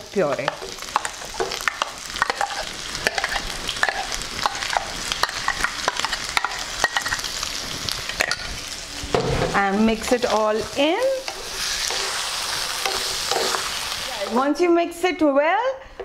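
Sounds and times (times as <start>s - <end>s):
potatoes sizzling in oil: 0.0s - 15.2s
spoon clicking and scraping: 0.4s - 7.3s, 11.2s - 13.7s.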